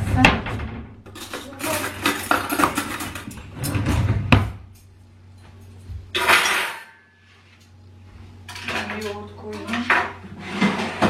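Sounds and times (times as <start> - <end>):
dishes and utensils clinking: 1.1 - 3.4.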